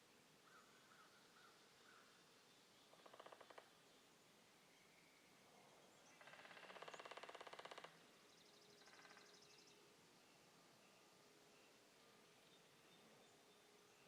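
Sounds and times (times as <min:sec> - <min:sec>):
woodpecker drumming on wood: 0:02.9 - 0:03.7, 0:06.2 - 0:08.0.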